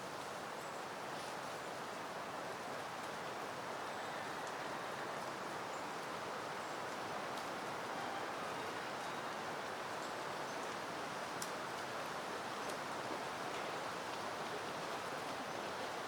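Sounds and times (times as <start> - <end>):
wind rustling through plants: 0.0 - 16.0.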